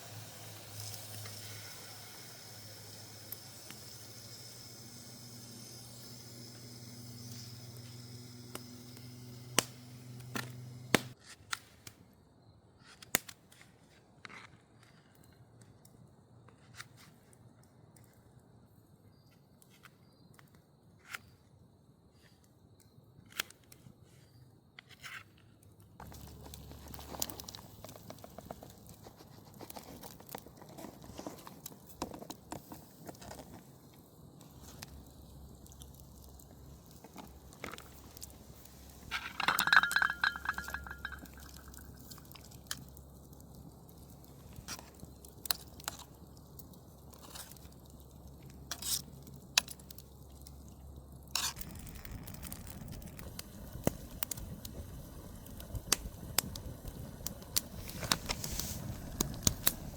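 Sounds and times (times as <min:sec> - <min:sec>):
small objects clicking and clinking: 0:37.0 - 0:43.5.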